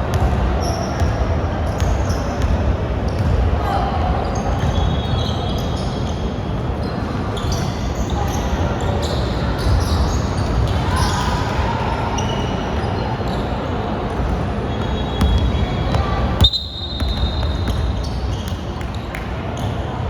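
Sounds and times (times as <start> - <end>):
background crowd hubbub: 0.0 - 20.0
basketball bouncing on court: 0.1 - 3.6, 14.2 - 19.7
shoe squeaks and knocks: 14.7 - 18.7.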